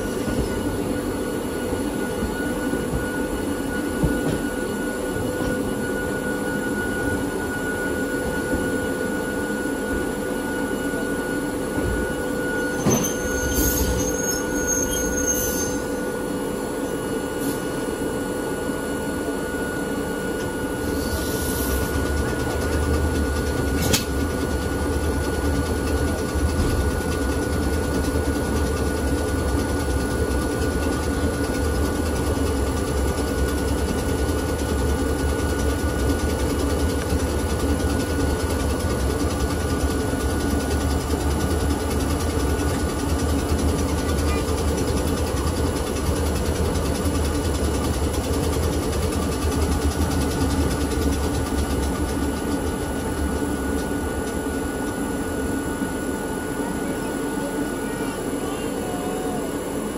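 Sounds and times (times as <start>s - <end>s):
railcar motors and wheels droning: 0.0s - 59.9s
wheel squeal: 12.5s - 16.0s.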